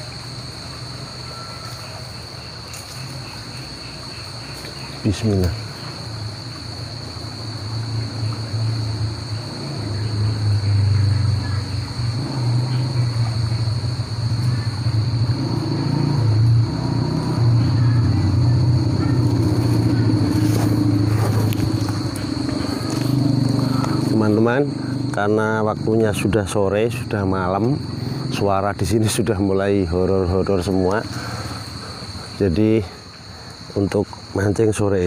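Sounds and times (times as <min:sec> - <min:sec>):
crickets chirring: 0:00.0 - 0:35.0
low wavering rumble: 0:07.6 - 0:25.9.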